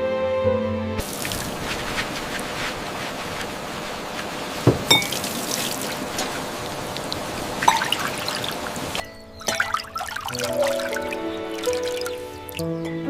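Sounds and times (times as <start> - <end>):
water splashing and dripping: 1.0 - 12.7
sharp knocks: 4.6 - 5.0.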